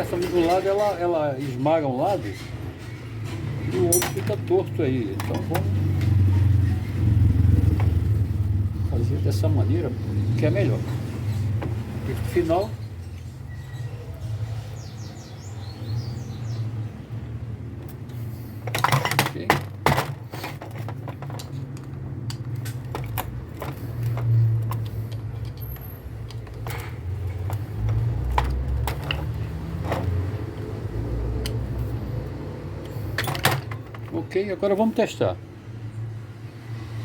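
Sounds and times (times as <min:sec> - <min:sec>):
hand tools clicking on metal: 0:20.5 - 0:30.7.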